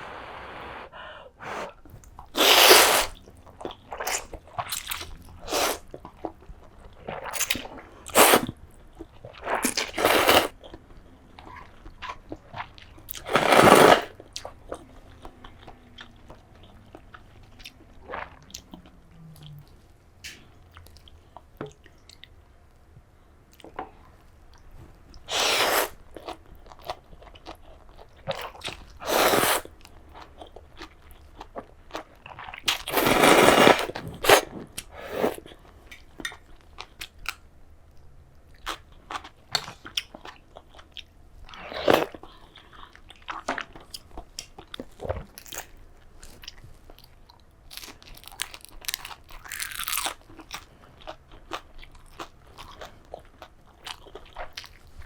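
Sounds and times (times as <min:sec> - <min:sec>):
crunchy bites and chewing: 0:44.6 - 0:54.8.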